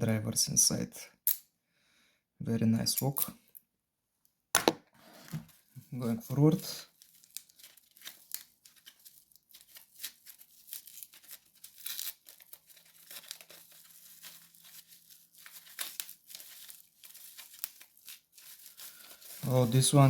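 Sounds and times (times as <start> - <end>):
packaging crinkling and rustling: 6.8 - 20.0.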